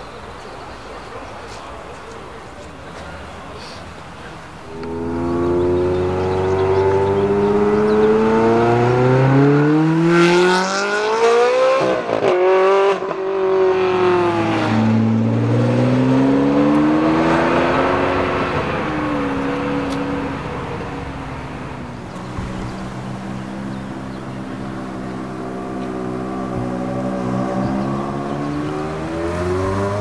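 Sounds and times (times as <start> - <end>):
car engine accelerating hard: 4.6 - 30.0
exhaust crackle: 17.8 - 30.0.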